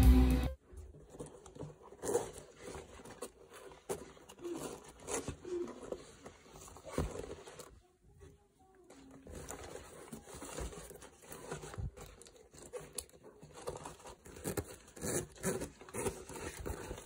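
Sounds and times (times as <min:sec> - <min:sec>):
music: 0:00.0 - 0:00.6
bag rustling and clicking: 0:00.8 - 0:07.8.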